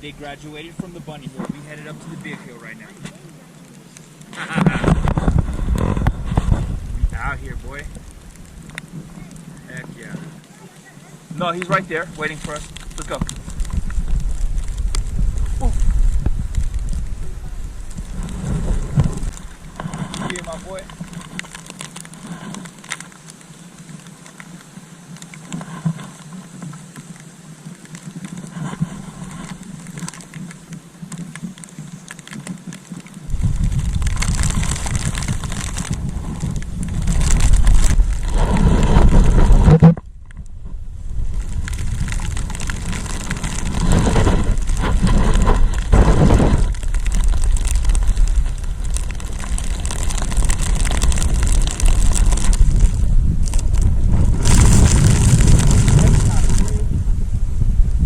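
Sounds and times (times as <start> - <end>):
wind buffeting microphone: 4.3 - 10.5, 11.2 - 22.8, 33.2 - 58.0.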